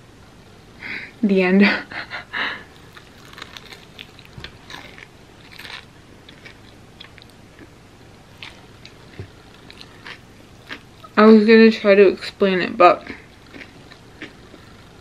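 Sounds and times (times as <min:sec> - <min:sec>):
biting and chewing candy bar: 0:02.7 - 0:07.7, 0:08.3 - 0:11.2, 0:13.0 - 0:15.0.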